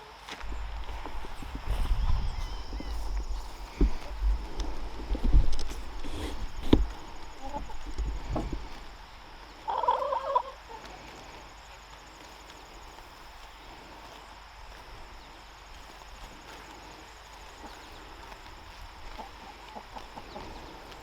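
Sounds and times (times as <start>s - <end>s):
farm bird warbling call: 0.0s - 4.8s, 5.7s - 8.9s, 9.5s - 10.8s.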